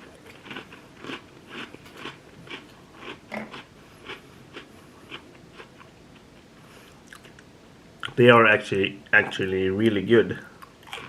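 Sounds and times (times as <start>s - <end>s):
cookie crunching being chewed: 0.0s - 8.2s, 10.5s - 11.0s.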